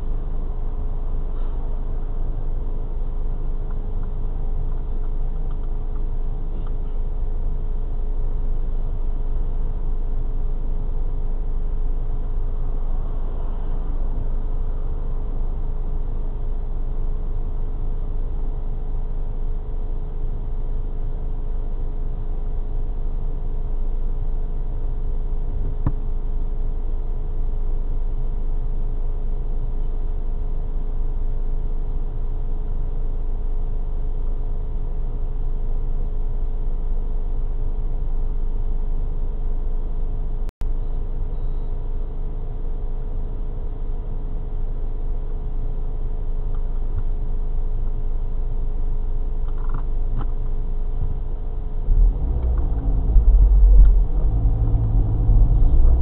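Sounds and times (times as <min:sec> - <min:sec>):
car engine idling: 0:47.7 - 0:56.0.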